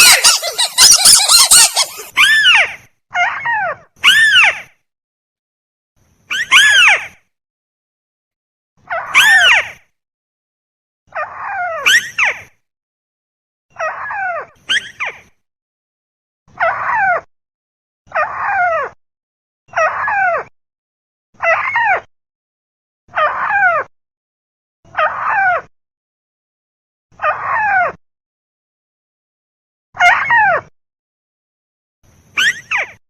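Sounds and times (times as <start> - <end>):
crake calling: 0.0 - 2.1.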